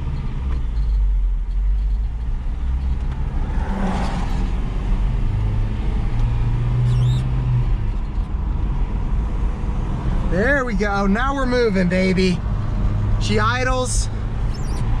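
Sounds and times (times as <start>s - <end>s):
short high squeak: 6.9s - 7.3s, 14.4s - 15.0s.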